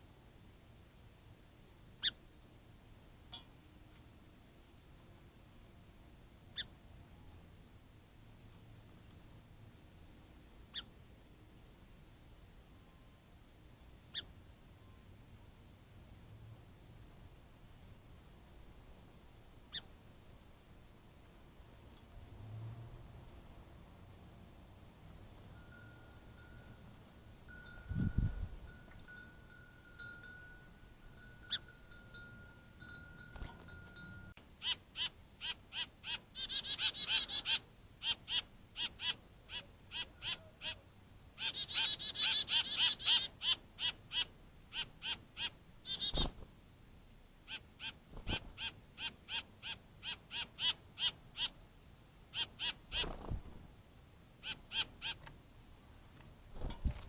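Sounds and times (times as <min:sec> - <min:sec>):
songbirds calling: 0:02.0 - 0:02.2, 0:03.2 - 0:03.6, 0:06.5 - 0:06.8, 0:10.7 - 0:11.0, 0:14.0 - 0:15.0, 0:19.6 - 0:20.1, 0:25.5 - 0:46.4, 0:47.4 - 0:51.6, 0:52.2 - 0:53.7, 0:54.4 - 0:57.0.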